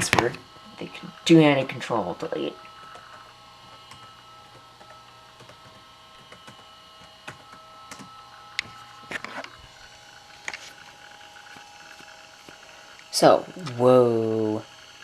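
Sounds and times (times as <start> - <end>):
laptop electronic whine: 0.0 - 15.0.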